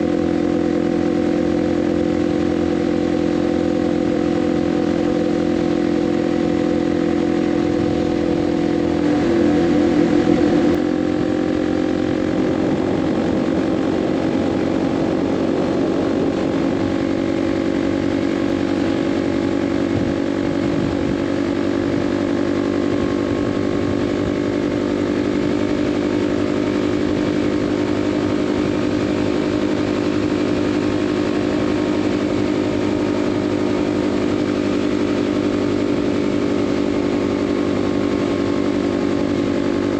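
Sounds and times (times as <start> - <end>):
motorcycle engine at highway speed: 0.0 - 39.9.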